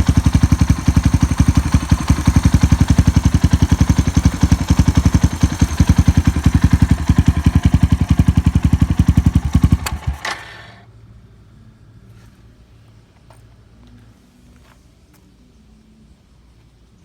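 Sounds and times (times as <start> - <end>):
motorcycle engine idling: 0.0 - 10.8.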